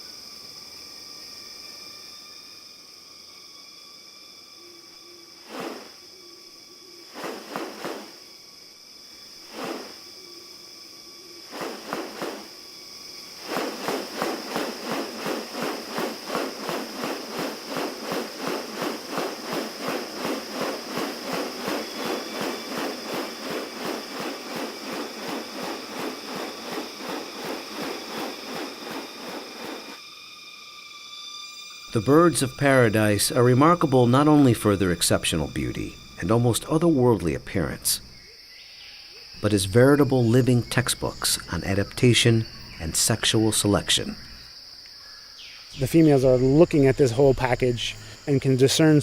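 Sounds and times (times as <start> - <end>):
high insect drone: 0.0 - 49.0
rapid even pulsing: 5.5 - 6.0, 7.1 - 8.2, 9.5 - 10.0, 11.5 - 12.6, 13.2 - 30.0
rustling: 7.1 - 8.2, 9.5 - 10.0, 11.5 - 12.6, 13.2 - 30.0.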